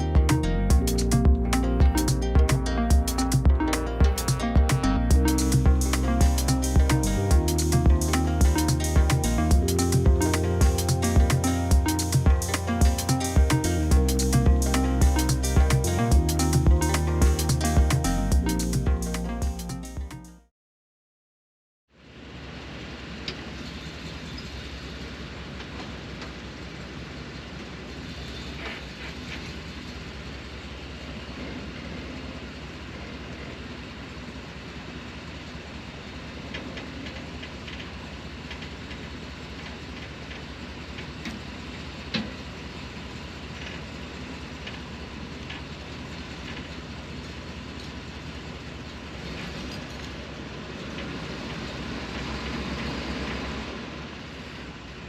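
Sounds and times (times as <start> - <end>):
tractor diesel engine running: 0.0 - 19.6.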